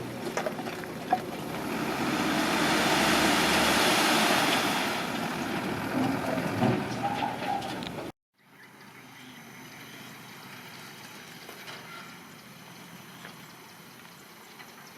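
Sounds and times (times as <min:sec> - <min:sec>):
bulldozer working: 0:00.0 - 0:08.1.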